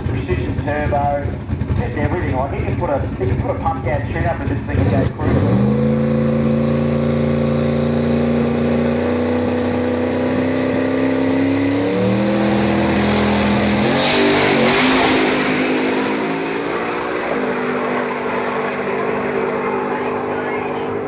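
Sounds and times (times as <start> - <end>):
race car engine revving: 0.0 - 21.0.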